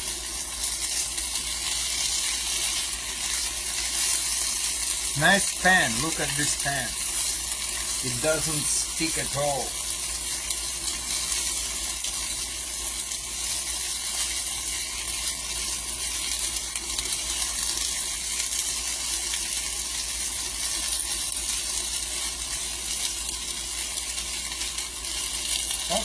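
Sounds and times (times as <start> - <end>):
potatoes sizzling in oil: 0.0 - 26.0.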